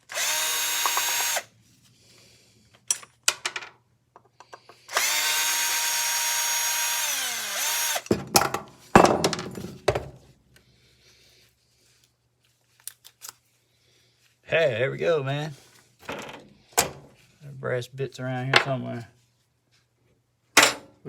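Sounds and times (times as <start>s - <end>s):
power drill running: 0.0s - 1.5s, 4.9s - 8.1s.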